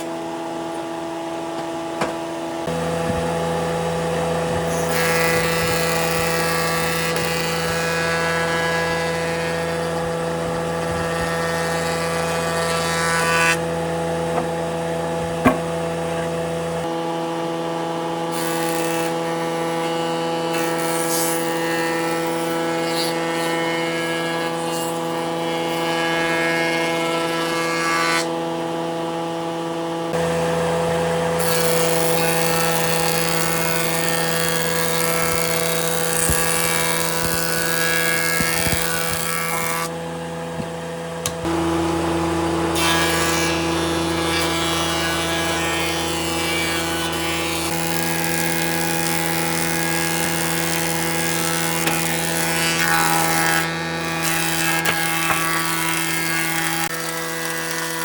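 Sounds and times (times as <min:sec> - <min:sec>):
power tool on wood: 0:00.0 - 0:58.0.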